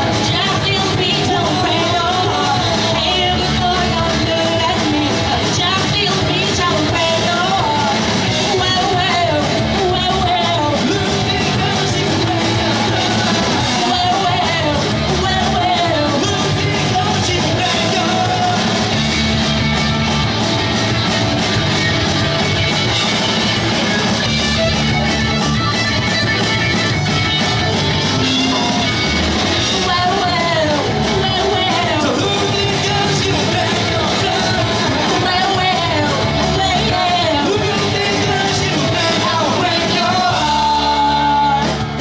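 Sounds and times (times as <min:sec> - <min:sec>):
person singing: 0:00.0 - 0:19.3, 0:28.0 - 0:42.0
pop-punk band playing live: 0:00.0 - 0:42.0.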